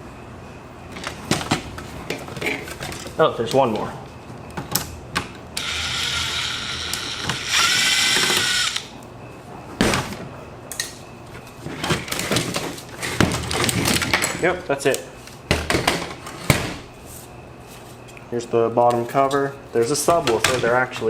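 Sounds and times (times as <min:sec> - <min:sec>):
electric screwdriver whirring: 0:05.6 - 0:08.9.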